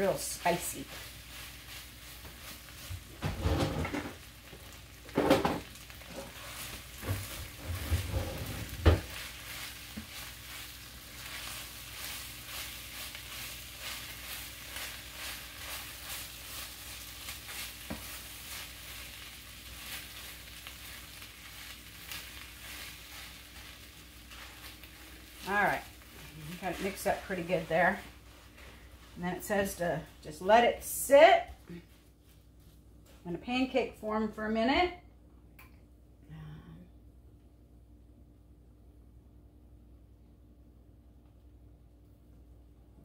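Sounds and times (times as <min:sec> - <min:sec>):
rice sizzling in a skillet: 0:00.0 - 0:31.2
spatula scraping a pan: 0:06.0 - 0:29.8.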